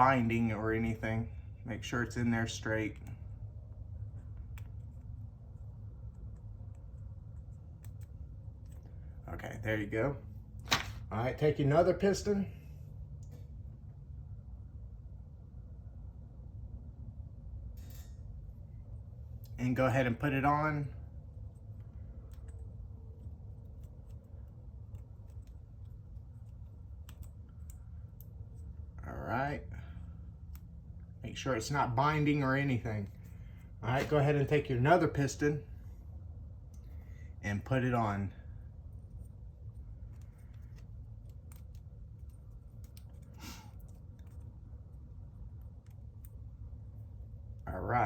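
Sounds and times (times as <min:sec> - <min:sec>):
steady low hum: 0:00.0 - 0:48.0
light clicks of small metal parts: 0:40.0 - 0:46.6.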